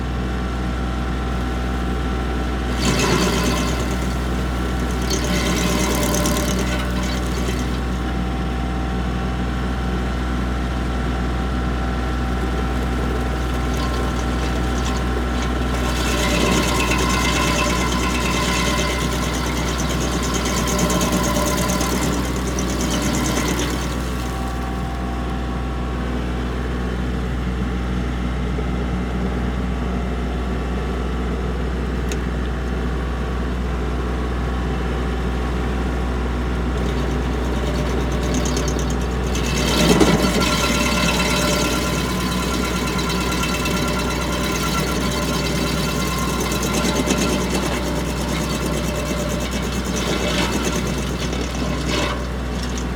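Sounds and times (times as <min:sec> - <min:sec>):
tractor engine running: 0:00.0 - 0:28.6, 0:30.4 - 0:52.9
stump grinder chewing wood: 0:00.2 - 0:26.7, 0:35.4 - 0:52.9.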